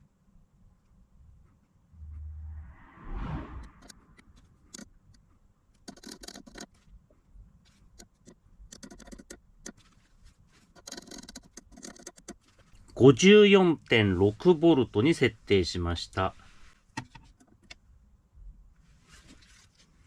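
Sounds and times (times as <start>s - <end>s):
rustling scrape: 18.8s - 20.0s.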